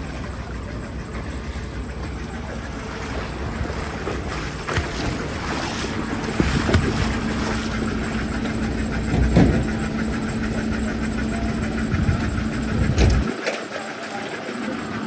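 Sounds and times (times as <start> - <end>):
heavy vehicle engine idling: 0.0 - 15.0.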